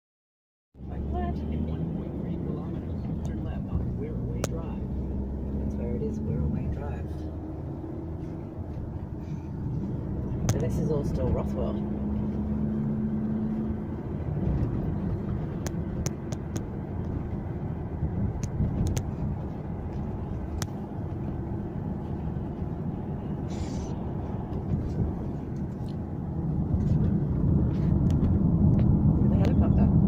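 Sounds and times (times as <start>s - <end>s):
car engine and tyre rumble: 0.8s - 30.0s
brief hiss: 23.5s - 24.0s.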